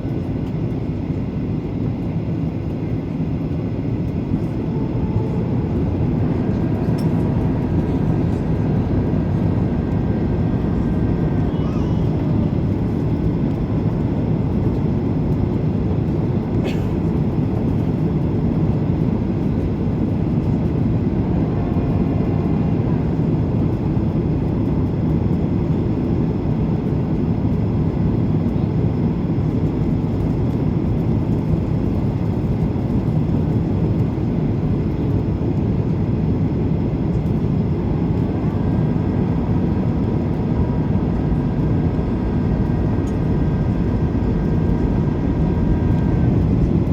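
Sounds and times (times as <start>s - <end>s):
jet airliner engines: 0.0s - 46.9s.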